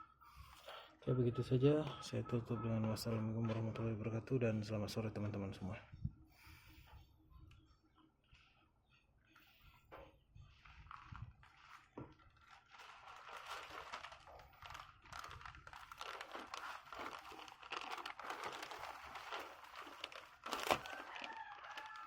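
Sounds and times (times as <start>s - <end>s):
plastic packaging crinkling: 10.4s - 22.0s.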